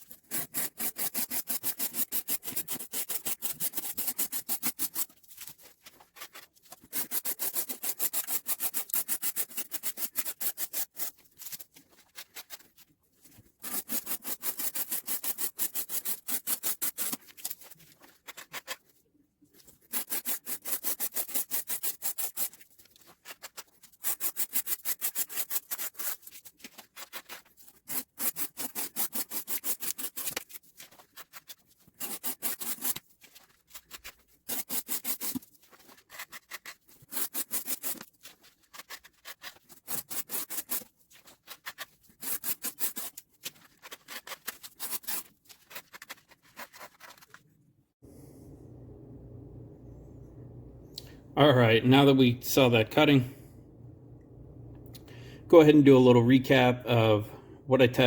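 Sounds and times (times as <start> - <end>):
knife blade rasping while slicing: 0.1 - 5.1, 6.9 - 11.2, 13.6 - 17.3, 19.8 - 22.6, 23.3 - 47.2.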